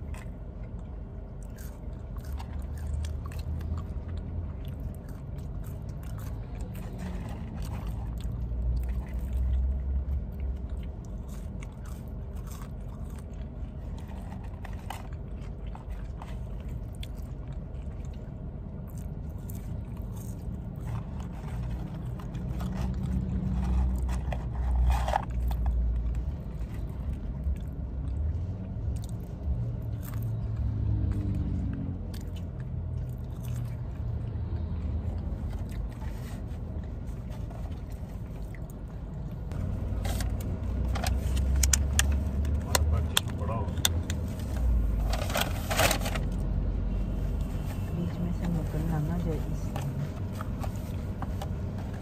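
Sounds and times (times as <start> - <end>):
chewing fries: 0.0 - 46.6
steady low rumble: 0.0 - 52.0
small scrapes and clicks: 18.9 - 27.7.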